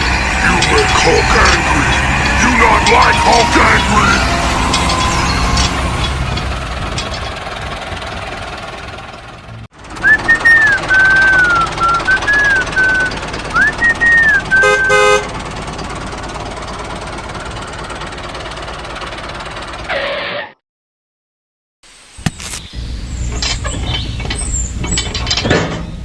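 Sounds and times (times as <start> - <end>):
horn toot: 12.6 - 15.3.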